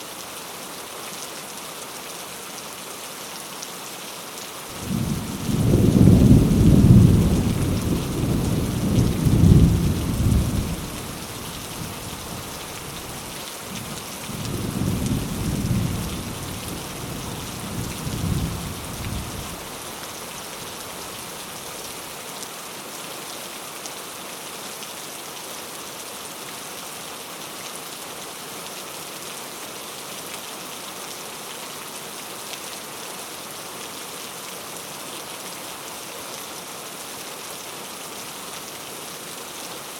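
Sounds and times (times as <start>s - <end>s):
heavy rain hissing: 4.6s - 22.2s
thunder rumbling: 4.8s - 12.5s, 13.8s - 19.8s.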